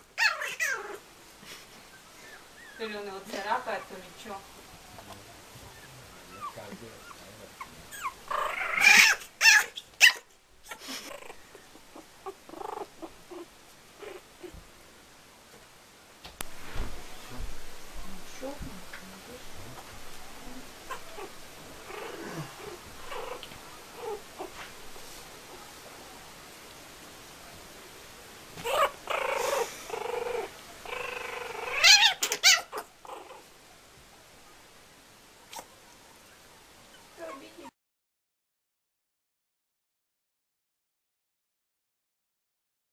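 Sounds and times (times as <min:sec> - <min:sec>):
harsh animal cries: 0:00.0 - 0:01.0, 0:05.7 - 0:14.6, 0:20.8 - 0:24.6, 0:28.6 - 0:33.5
kitten harsh cry: 0:07.9 - 0:10.8, 0:30.9 - 0:32.9
animals scuffling: 0:16.3 - 0:26.8
kitten growling low yowl: 0:20.5 - 0:24.6, 0:28.6 - 0:33.5
kitten hissing: 0:28.6 - 0:32.9.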